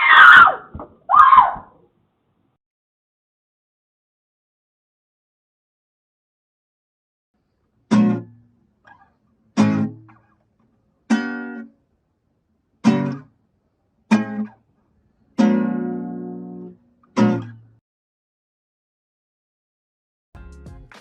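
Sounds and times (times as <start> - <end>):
guitar chord strums: 7.9 - 8.4, 9.6 - 10.2, 12.8 - 13.3, 14.1 - 14.5, 15.4 - 17.8.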